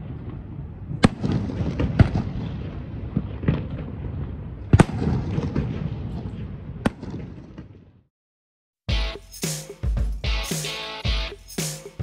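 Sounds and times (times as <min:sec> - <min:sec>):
fireworks bangs: 0:00.0 - 0:08.0.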